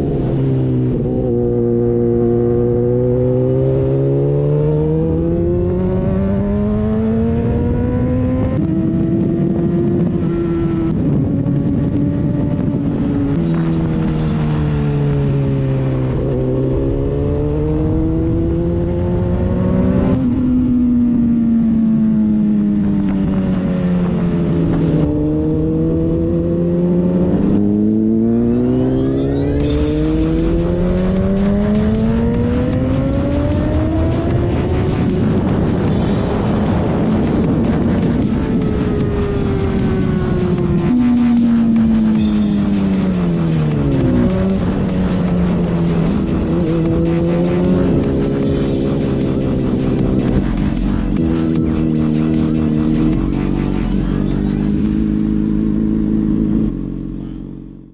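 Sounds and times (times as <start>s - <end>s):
motorcycle engine revving: 0.0s - 57.9s
wind buffeting on microphone: 7.3s - 16.2s, 32.2s - 42.2s.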